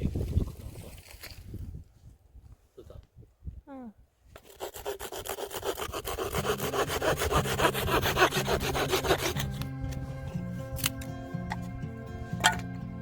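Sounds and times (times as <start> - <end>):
hand saw cutting wood: 4.4 - 10.0
background music: 6.4 - 13.0.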